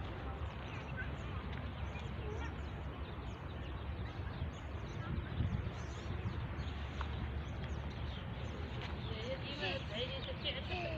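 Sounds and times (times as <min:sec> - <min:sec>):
small birds chirping: 0:00.0 - 0:10.9
wind rumble on microphone: 0:00.0 - 0:10.9.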